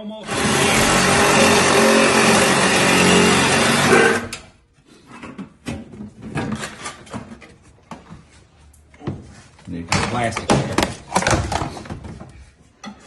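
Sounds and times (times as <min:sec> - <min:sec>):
electric power saw cutting: 0:00.2 - 0:04.4.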